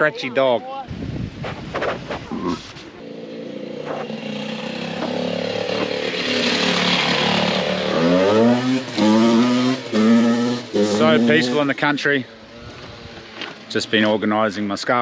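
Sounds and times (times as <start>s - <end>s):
motorbike engine revving: 2.2s - 11.9s.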